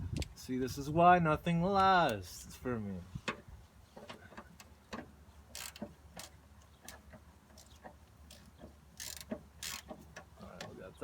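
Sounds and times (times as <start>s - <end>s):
hand ratchet clicking: 5.5s - 7.0s, 7.6s - 10.3s.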